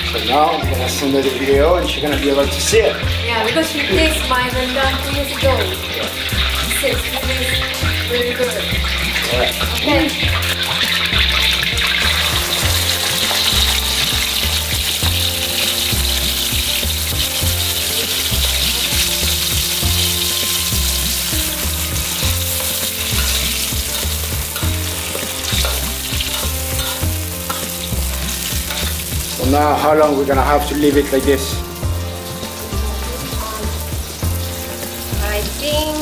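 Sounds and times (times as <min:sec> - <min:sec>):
paste sizzling in hot oil: 0:00.0 - 0:36.0
ladle stirring in wok: 0:08.5 - 0:29.4.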